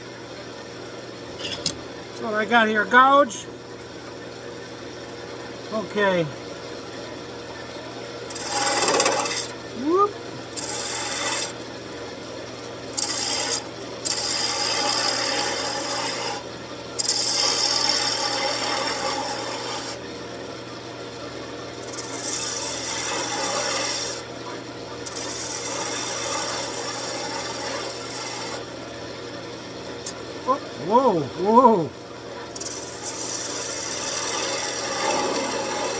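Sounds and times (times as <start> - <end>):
lathe motor hum: 8.1 - 20.0, 21.8 - 24.3, 25.0 - 28.9, 29.5 - 35.9
gouge scraping spinning wood: 8.2 - 11.8, 12.8 - 20.0, 21.7 - 24.3, 25.0 - 28.9, 30.6 - 35.9.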